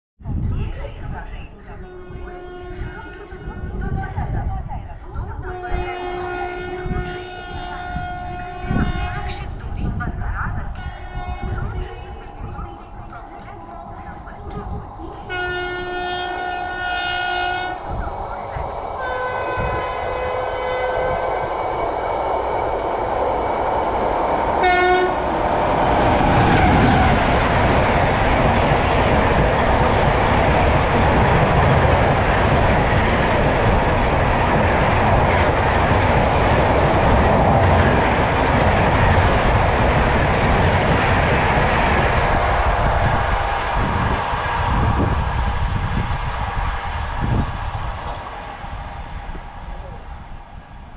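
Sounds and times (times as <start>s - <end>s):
train running noise: 0.3s - 50.9s
locomotive horn blasts: 2.0s - 2.9s, 5.5s - 9.3s, 11.0s - 11.6s, 15.3s - 17.8s, 19.0s - 21.2s, 24.6s - 25.2s.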